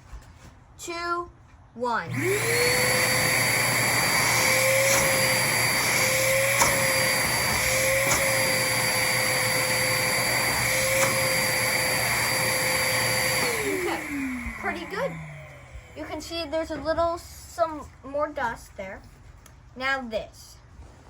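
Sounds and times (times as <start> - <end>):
air rushing through hose: 2.1 - 16.1
shop vacuum motor whining: 2.1 - 16.8.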